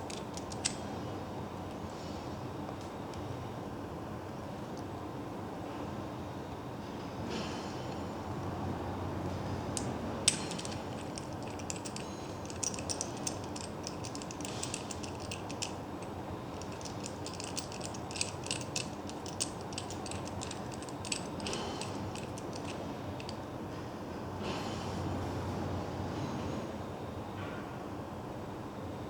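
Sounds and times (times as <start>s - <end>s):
sharp irregular clicks: 9.8s - 23.4s.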